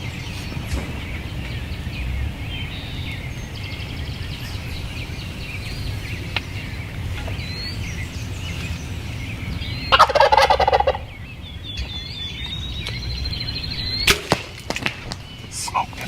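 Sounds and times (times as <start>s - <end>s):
songbirds chirping: 0.0s - 16.0s
turkey gobbling: 9.8s - 11.6s.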